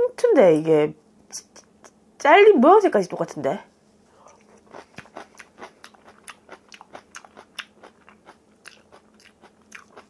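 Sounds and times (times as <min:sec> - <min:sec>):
crunchy chewing: 0:04.1 - 0:10.0.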